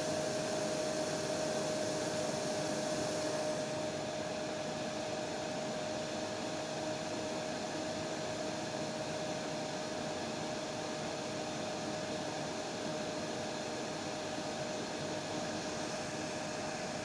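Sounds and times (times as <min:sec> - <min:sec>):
hair dryer running: 0:00.0 - 0:05.6, 0:14.1 - 0:17.0.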